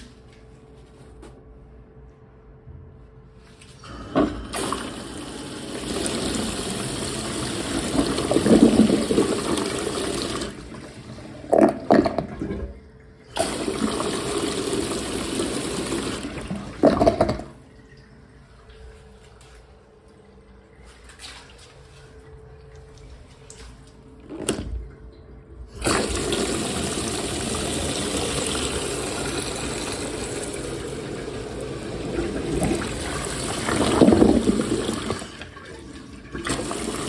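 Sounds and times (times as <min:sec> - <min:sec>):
toilet flushing water rush: 0:03.7 - 0:19.5, 0:25.6 - 0:37.0.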